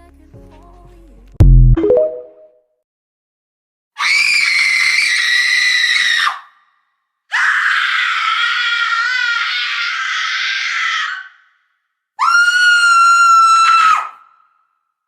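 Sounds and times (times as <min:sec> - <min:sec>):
high-pitched screams: 0:04.0 - 0:06.6, 0:07.3 - 0:11.5, 0:12.2 - 0:14.5.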